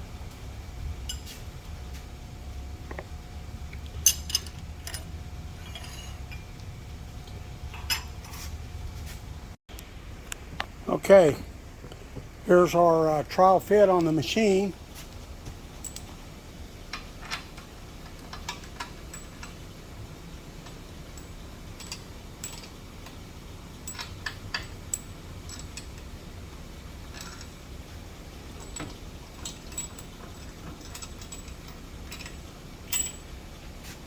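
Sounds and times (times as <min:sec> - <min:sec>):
low background hum: 0:00.0 - 0:34.0
metallic clicks and clinks: 0:03.8 - 0:08.4, 0:20.6 - 0:23.2, 0:23.8 - 0:26.1, 0:27.0 - 0:27.6, 0:28.6 - 0:33.3.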